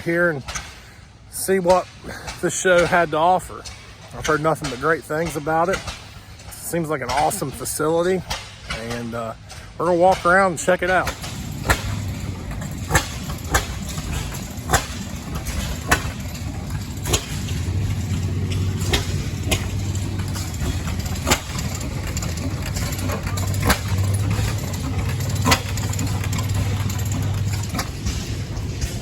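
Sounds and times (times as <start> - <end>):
sharp exhaust pops: 0.0 - 29.0
low engine hum: 11.1 - 29.0.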